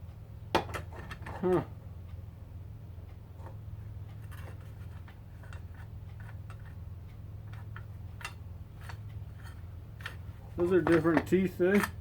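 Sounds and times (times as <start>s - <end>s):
steady low hum: 0.0s - 12.0s
light clicks and taps of parts: 3.0s - 12.0s.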